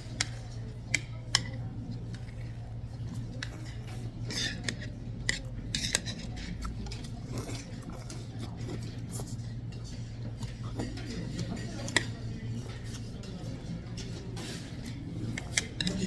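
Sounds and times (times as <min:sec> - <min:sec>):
utensils clinking against dishes: 0:00.0 - 0:16.0
utensils scraping dishes: 0:10.8 - 0:16.0.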